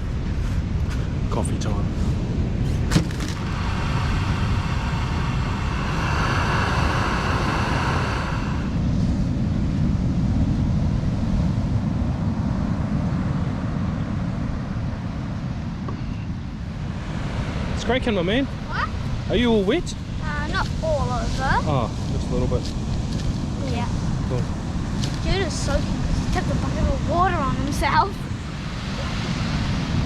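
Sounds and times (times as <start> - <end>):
wind and surf rumble: 0.0 - 30.0
high hissing whine: 3.4 - 9.0.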